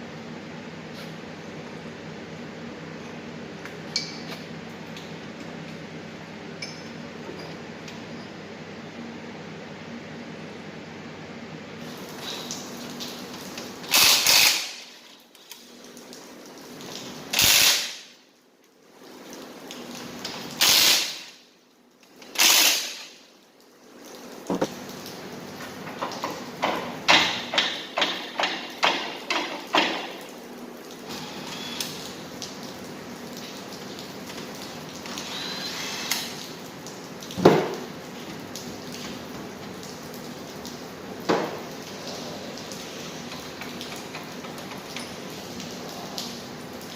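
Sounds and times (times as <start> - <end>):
air tool hissing bursts: 13.9 - 14.8, 17.4 - 18.0, 20.6 - 21.3.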